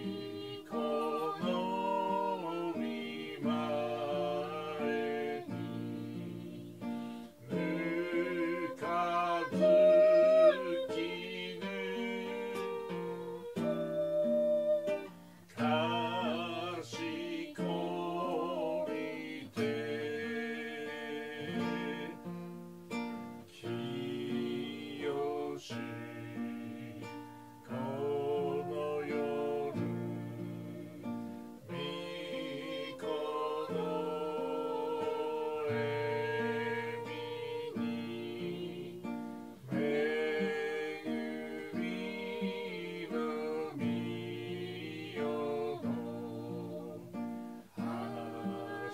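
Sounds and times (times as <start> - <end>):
two voices singing a hymn: 0.0 - 48.9.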